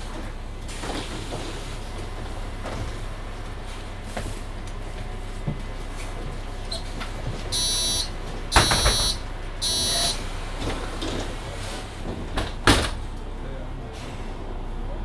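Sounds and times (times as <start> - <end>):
bus low hum: 0.0 - 15.0
electronic warning beeps: 7.5 - 10.2.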